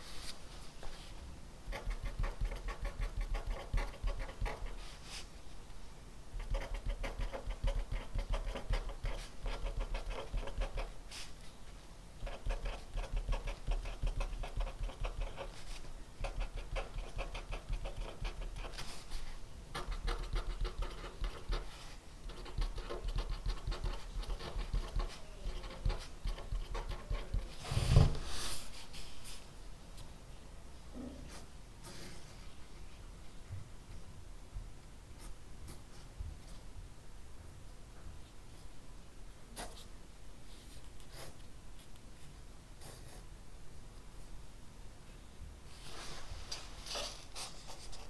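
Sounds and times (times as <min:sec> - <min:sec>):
pen scratching on paper: 0:01.7 - 0:04.9, 0:06.4 - 0:11.3, 0:12.2 - 0:19.0, 0:19.7 - 0:28.2.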